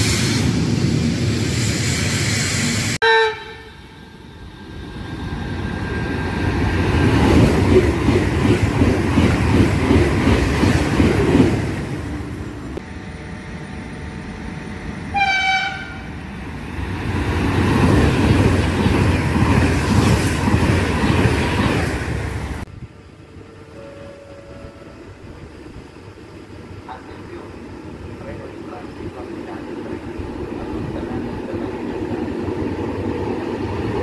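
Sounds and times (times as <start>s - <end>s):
train rolling rail noise: 0.0s - 34.0s
train horn toot: 3.0s - 4.0s, 15.1s - 16.2s, 23.4s - 25.2s.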